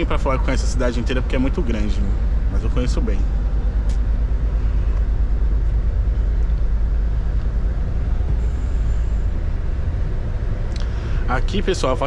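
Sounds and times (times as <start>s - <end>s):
road noise: 0.0s - 12.0s
truck diesel engine rumble: 0.0s - 12.0s.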